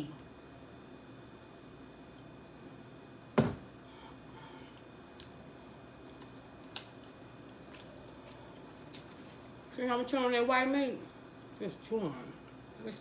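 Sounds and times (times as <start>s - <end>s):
person chewing: 4.7s - 9.6s.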